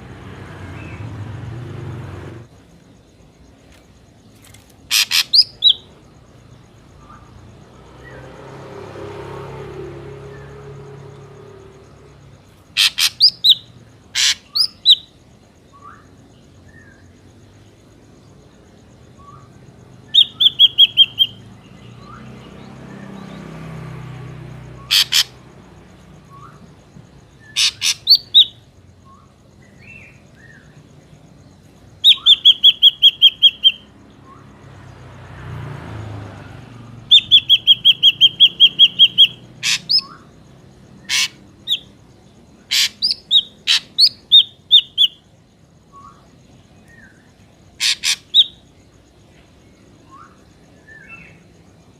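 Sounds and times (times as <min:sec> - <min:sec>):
bird whistling calls: 0:04.9 - 0:05.9, 0:12.8 - 0:15.1, 0:20.1 - 0:22.3, 0:27.4 - 0:30.7, 0:32.0 - 0:34.4, 0:37.1 - 0:40.3, 0:42.7 - 0:45.2
sharp sweeping bird notes: 0:19.2 - 0:25.4, 0:32.0 - 0:34.5, 0:36.8 - 0:40.4.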